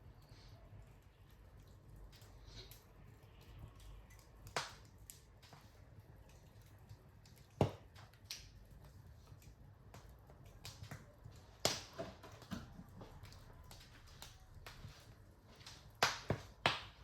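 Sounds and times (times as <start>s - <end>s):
low rumble of flames: 0.0s - 17.0s
wood fire crackling: 0.0s - 17.0s
sharp pops of fire: 4.1s - 17.0s.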